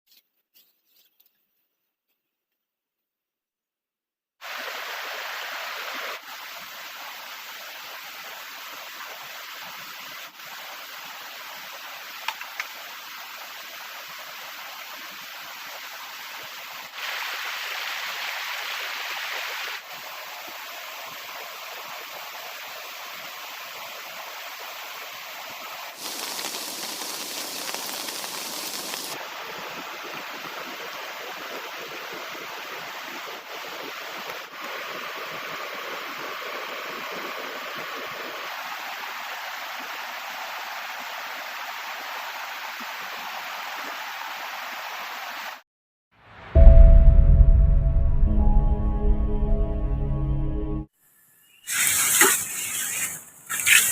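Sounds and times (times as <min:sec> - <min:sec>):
heavy rain: 0:16.9 - 0:19.9, 0:25.7 - 0:39.0.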